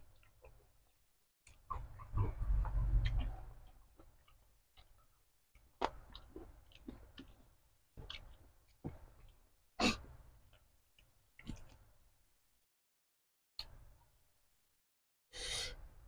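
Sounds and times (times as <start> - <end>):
person chewing food: 0.0 - 11.9.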